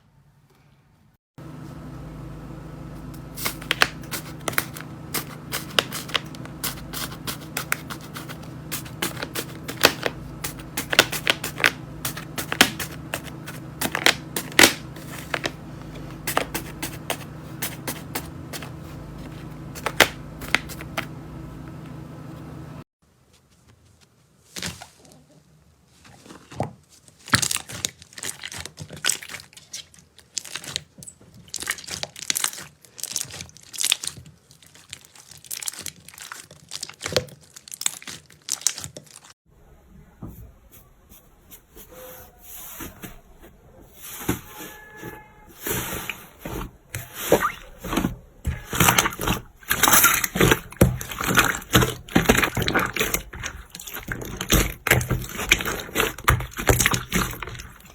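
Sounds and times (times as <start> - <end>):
sticky pops and crackles: 3.4 - 15.5.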